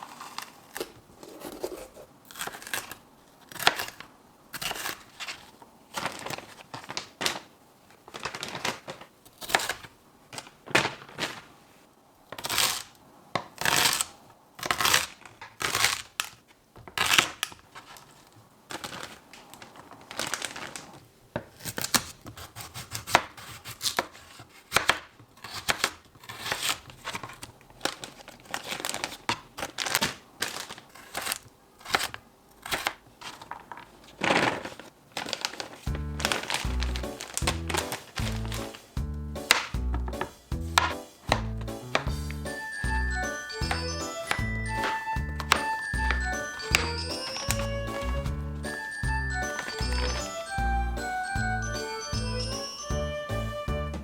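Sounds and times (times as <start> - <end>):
food scraping and cutting: 0.0 - 6.2, 12.4 - 19.1, 21.5 - 34.0.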